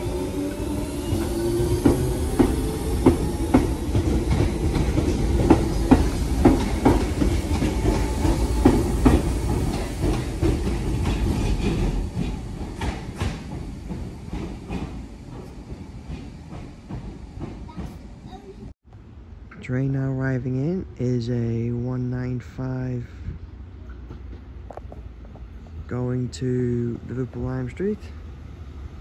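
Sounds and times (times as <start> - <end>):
train rumble: 0.0 - 29.0
train wheels clacking over rail joints: 1.2 - 18.0.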